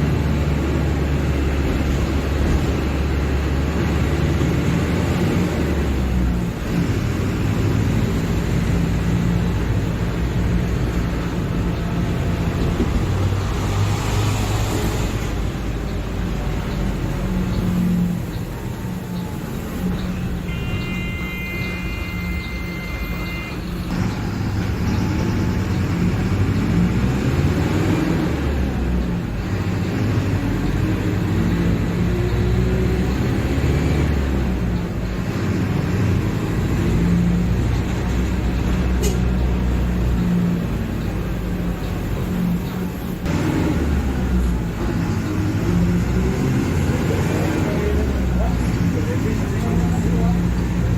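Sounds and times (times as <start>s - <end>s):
bus diesel engine: 0.0s - 50.9s
steady electronic beep: 20.4s - 24.0s.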